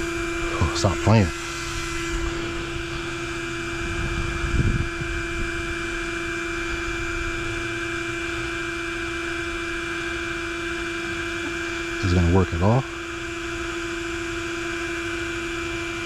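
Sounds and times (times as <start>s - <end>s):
short low rumble: 0.0s - 7.6s
electrical hum: 0.0s - 16.0s.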